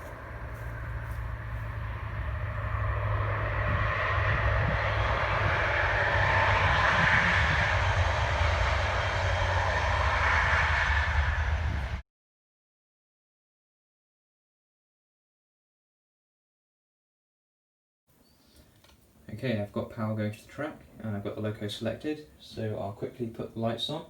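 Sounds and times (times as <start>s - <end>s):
diesel locomotive engine roaring: 0.0s - 12.0s.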